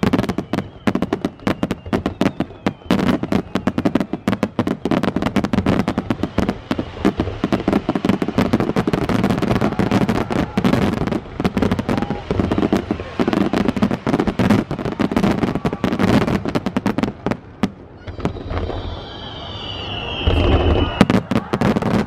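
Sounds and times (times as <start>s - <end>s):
high falling whistle: 0.0s - 9.1s, 18.0s - 21.7s
fireworks cracking and banging: 0.0s - 22.0s.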